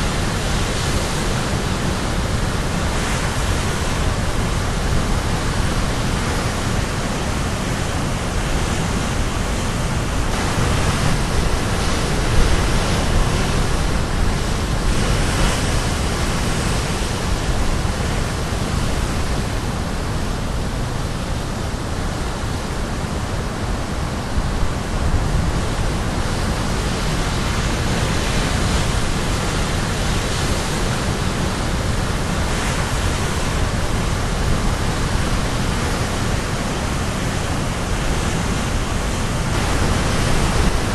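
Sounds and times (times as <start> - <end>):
waves crashing on rocky shore: 0.0 - 40.9.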